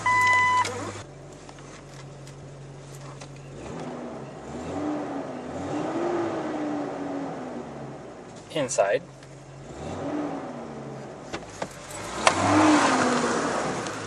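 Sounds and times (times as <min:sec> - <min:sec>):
dashboard chime beeping: 0:00.0 - 0:00.8
car engine idling and revving: 0:00.0 - 0:14.0.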